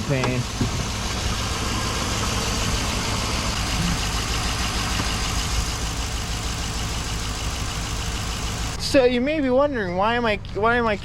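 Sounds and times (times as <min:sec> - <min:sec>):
engine idling: 0:00.0 - 0:08.8.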